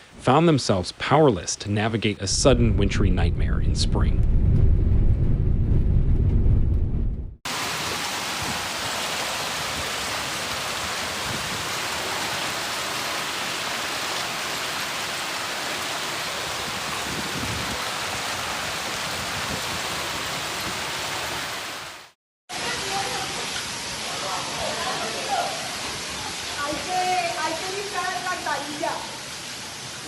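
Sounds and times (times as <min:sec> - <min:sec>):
heavy rain downpour: 0:07.5 - 0:30.0.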